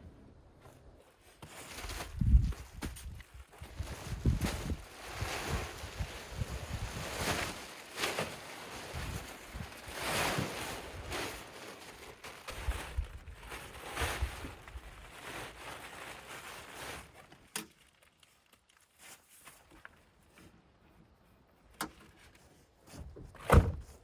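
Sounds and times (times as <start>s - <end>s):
handling rustle: 0.6s - 24.0s
heavy thunk: 23.4s - 24.0s.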